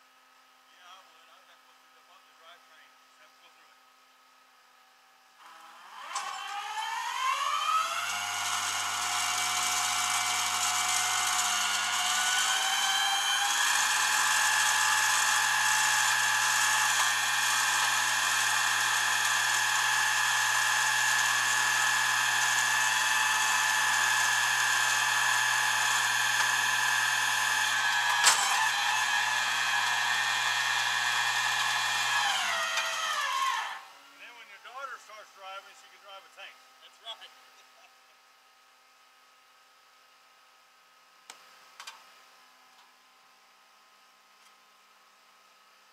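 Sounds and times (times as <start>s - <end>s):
motor whine: 5.4s - 34.2s.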